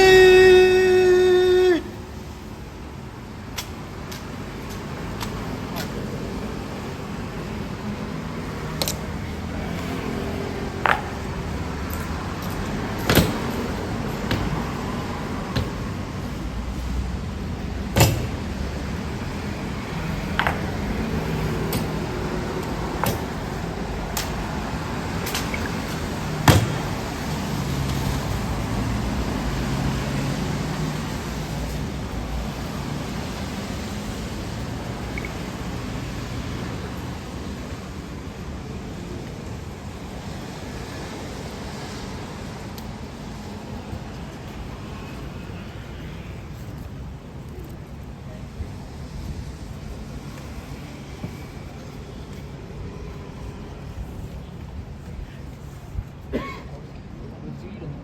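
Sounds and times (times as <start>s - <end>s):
sharp knock: 18.0s - 18.6s.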